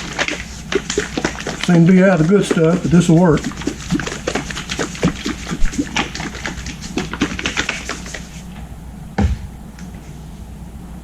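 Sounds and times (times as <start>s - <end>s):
dull thump: 9.2s - 9.6s.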